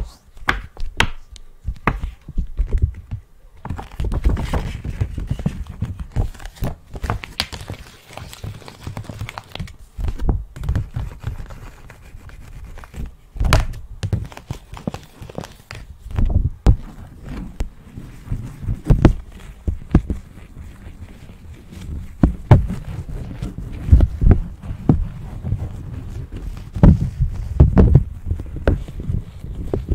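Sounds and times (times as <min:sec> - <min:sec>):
crinkling: 0:00.2 - 0:29.9
soft thuds and knocks: 0:26.5 - 0:29.9.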